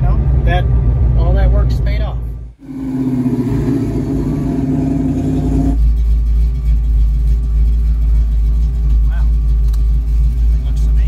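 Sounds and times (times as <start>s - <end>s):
car engine pulling away: 2.6s - 8.3s
car engine idling: 2.6s - 11.0s.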